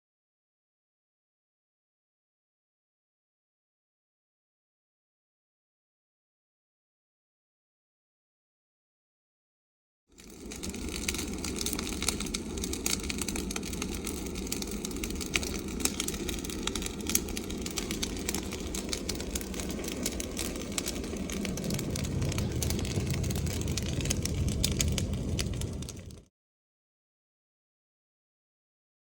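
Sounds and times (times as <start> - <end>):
bonfire crackling: 10.1 - 26.3
low rumble: 10.2 - 26.3.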